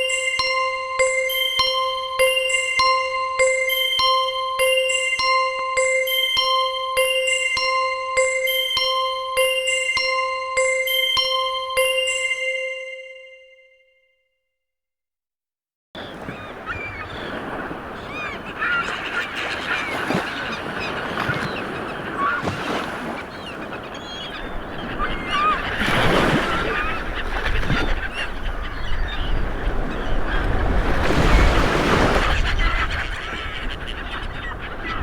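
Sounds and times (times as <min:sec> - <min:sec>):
many birds calling: 0:16.0 - 0:35.0.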